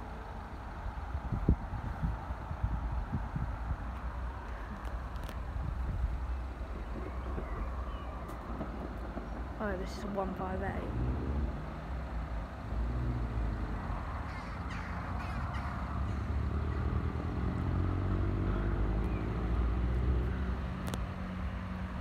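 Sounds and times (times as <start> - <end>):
diesel train engine rumble: 0.0 - 22.0
bird calling: 14.2 - 16.8.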